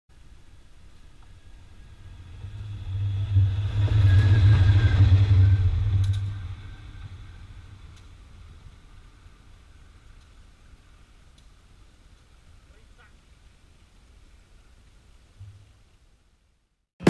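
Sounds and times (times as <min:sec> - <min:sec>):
diesel locomotive engine hum: 0:00.1 - 0:13.2.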